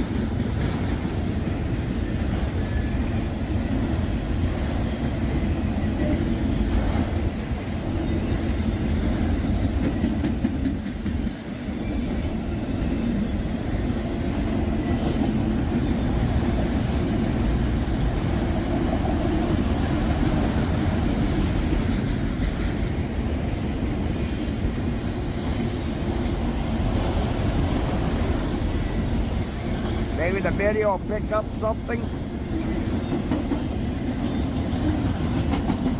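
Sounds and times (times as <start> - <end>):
wheels clicking over rail joints: 0.0 - 12.3, 32.5 - 35.9
steel wheels rumbling on rails: 0.0 - 35.9.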